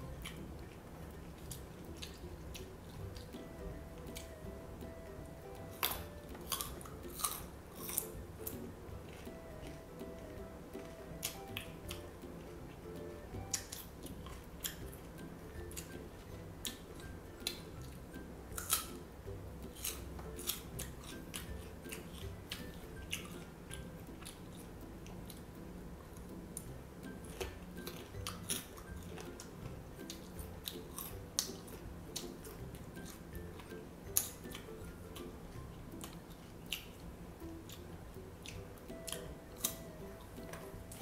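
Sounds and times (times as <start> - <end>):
quiet background music: 0.0 - 41.0
crunching bites of fruit: 5.6 - 12.1, 17.5 - 19.0, 19.6 - 24.7, 26.6 - 34.8.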